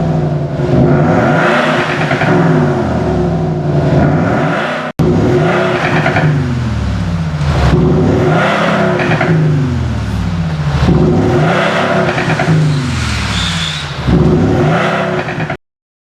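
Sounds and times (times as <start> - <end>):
car engine revving: 0.0 - 15.6.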